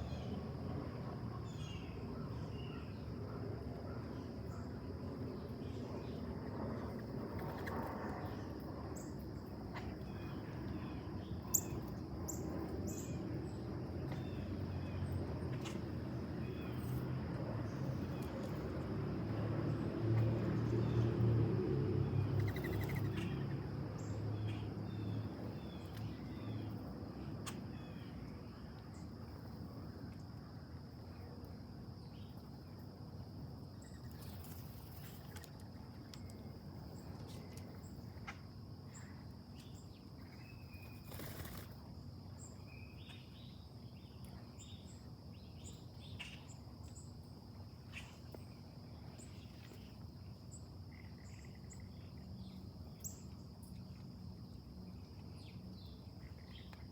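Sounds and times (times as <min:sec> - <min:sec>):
passing vehicle rumble: 0:17.2 - 0:25.4
bird chirps: 0:22.4 - 0:23.4.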